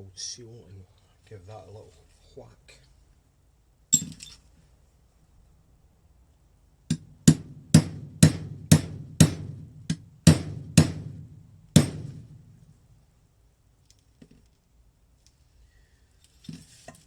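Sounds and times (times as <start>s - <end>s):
hammer tapping metal: 6.9s - 12.3s.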